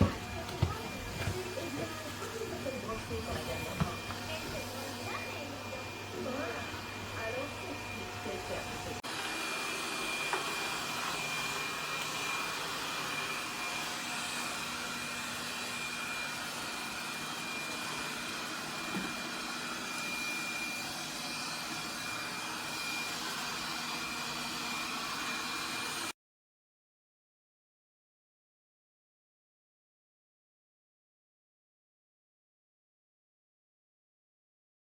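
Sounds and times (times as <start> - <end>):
vacuum suction motor running: 0.0 - 26.1.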